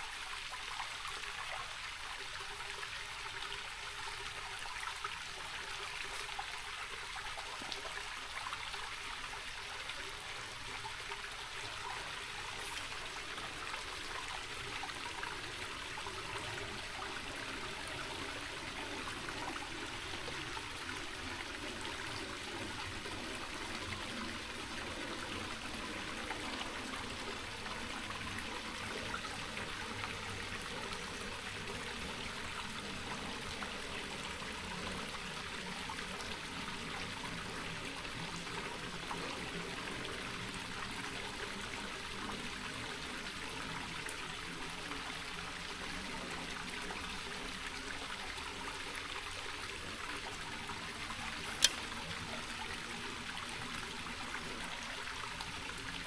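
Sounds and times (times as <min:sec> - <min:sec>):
creek water trickling: 0:00.0 - 0:56.0
sharp click: 0:51.5 - 0:51.8.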